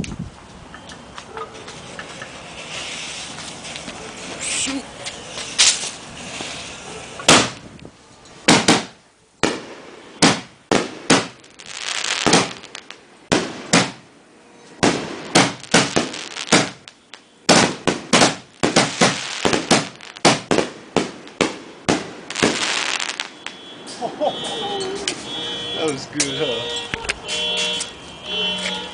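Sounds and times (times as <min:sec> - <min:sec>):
firework shells booming: 0:07.2 - 0:07.6, 0:08.4 - 0:14.1, 0:14.8 - 0:24.0.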